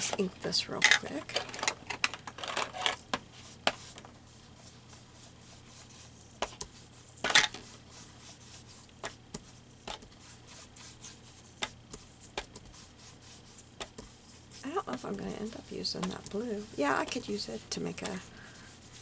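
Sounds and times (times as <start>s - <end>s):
ink pad tapping on paper: 11.6s - 12.8s, 13.8s - 18.3s.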